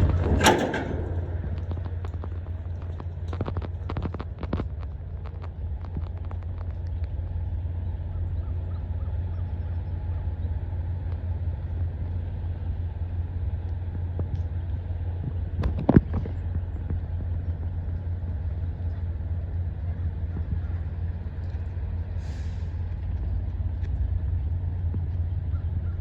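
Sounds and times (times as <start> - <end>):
clicks and knocks: 0.0 - 6.7
diesel truck engine idling: 0.0 - 15.6, 16.2 - 26.0.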